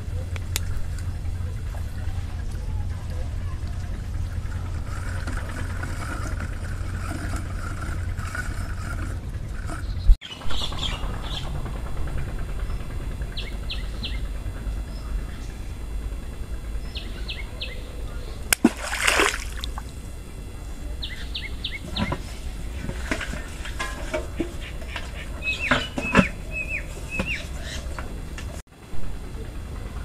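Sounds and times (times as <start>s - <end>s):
low rumble: 0.0s - 18.5s
faint hum: 0.0s - 30.0s
small birds chirping: 7.7s - 11.5s, 12.6s - 18.5s, 20.8s - 23.7s, 24.4s - 28.0s.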